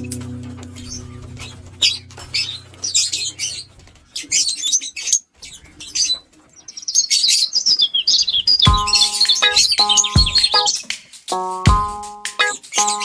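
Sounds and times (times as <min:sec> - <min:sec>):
lovebirds chirping: 0:00.0 - 0:04.8, 0:06.8 - 0:10.8.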